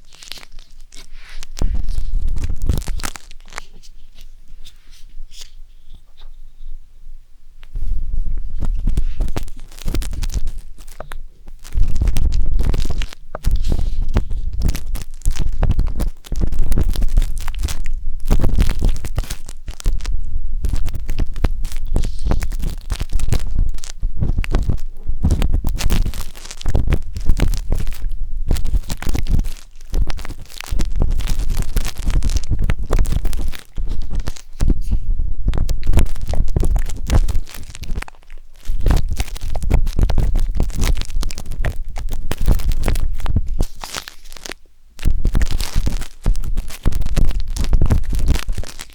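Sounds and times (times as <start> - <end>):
wooden skewer scraping microphone: 0.0 - 6.8, 7.7 - 48.9
low rumble: 11.8 - 38.0.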